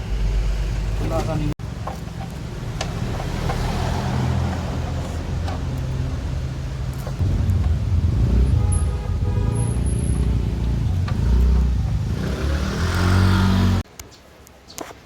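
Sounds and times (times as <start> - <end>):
vehicle engine running: 6.7 - 13.8.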